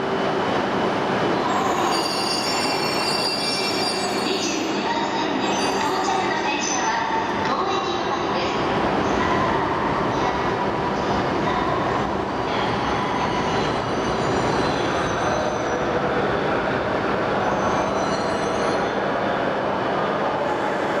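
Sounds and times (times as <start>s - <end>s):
faint wheel squeal: 17.4s - 18.9s.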